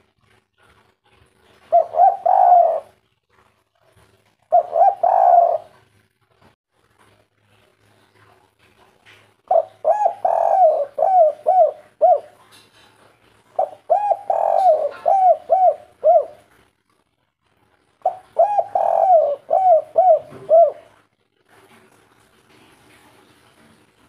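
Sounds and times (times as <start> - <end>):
dove cooing: 1.4 - 3.0, 4.4 - 5.9, 9.5 - 12.5, 13.6 - 16.6, 18.0 - 21.0.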